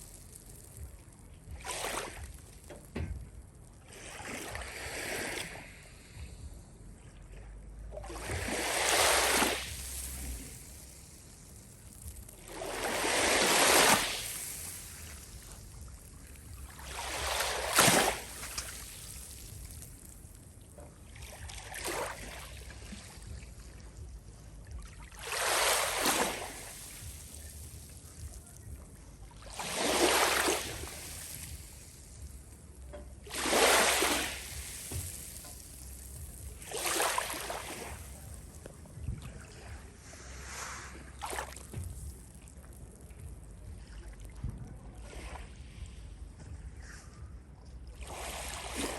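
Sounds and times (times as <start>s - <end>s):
waves surging: 8.1s - 11.2s, 12.3s - 19.8s, 25.2s - 28.5s, 29.5s - 31.8s, 33.2s - 38.5s, 39.7s - 41.7s.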